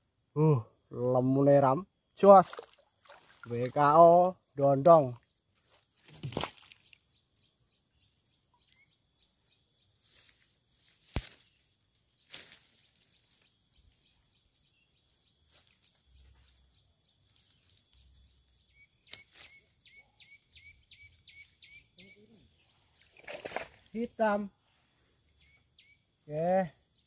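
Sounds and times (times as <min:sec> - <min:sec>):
lower rising bird chirps: 0:05.1 - 0:10.3, 0:11.4 - 0:27.0
rapid high bird chirps: 0:11.4 - 0:24.5, 0:25.4 - 0:27.0.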